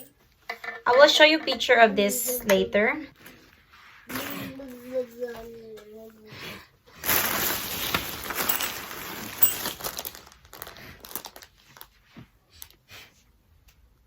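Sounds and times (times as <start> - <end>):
packaging crinkling and rustling: 7.0 - 12.0.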